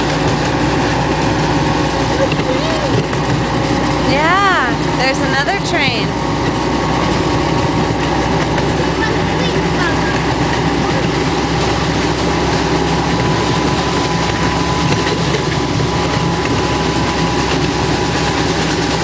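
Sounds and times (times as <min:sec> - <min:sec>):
miniature train engine hum: 0:00.0 - 0:19.0.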